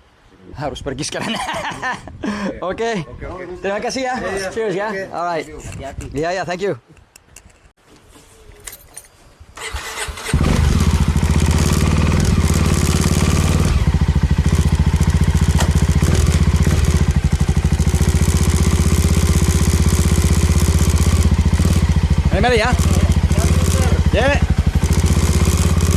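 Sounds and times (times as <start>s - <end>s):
motorcycle engine starting and idling: 9.6s - 25.9s.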